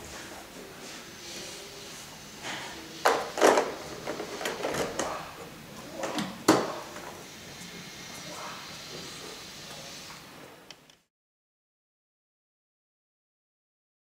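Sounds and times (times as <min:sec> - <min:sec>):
vacuum cleaner parts clicking: 0:03.1 - 0:05.2.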